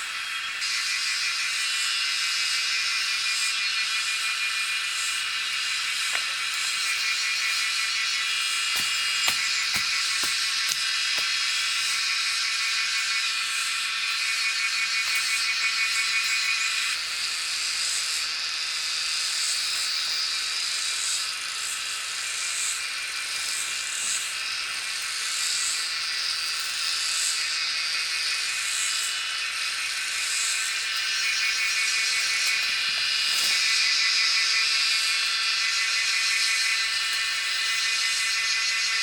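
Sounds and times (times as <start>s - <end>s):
high-pitched buzzing drone: 0.0s - 19.0s.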